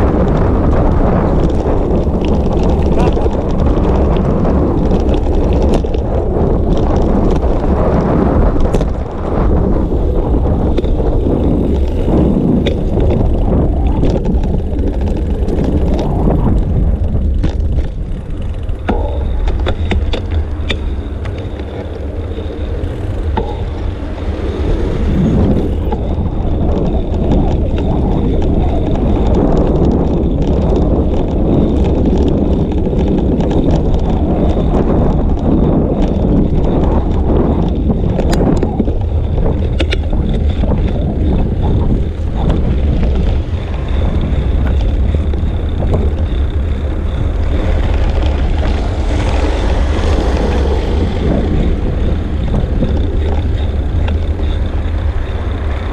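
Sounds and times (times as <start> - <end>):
bicycle rattles and clicks: 0.0 - 55.9
wind buffeting microphone: 0.0 - 55.9.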